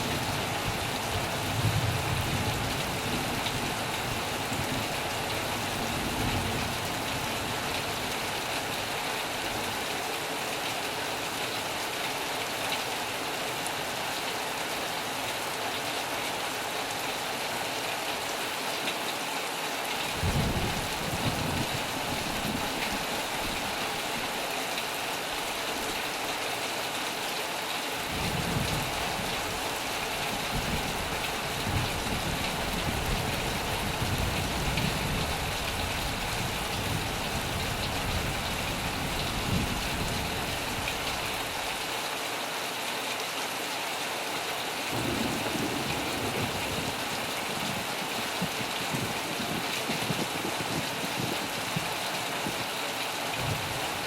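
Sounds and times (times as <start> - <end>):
heavy rain falling: 0.0 - 54.0
low thunder rumbling: 20.1 - 23.1, 44.9 - 51.3.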